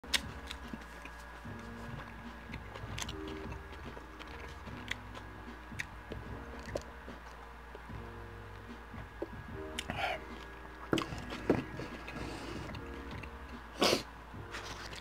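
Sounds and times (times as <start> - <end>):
chewing with mouth clicks: 0.0 - 6.0.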